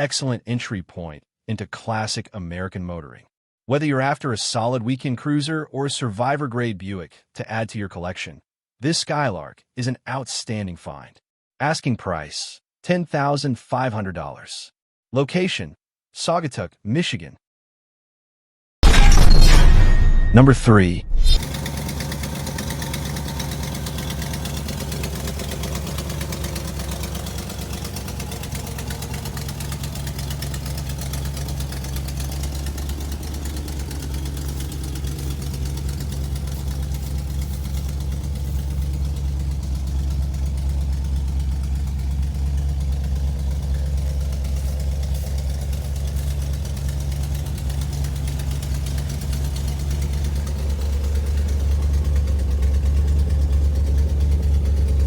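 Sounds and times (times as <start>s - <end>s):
car engine idling: 21.4s - 55.0s.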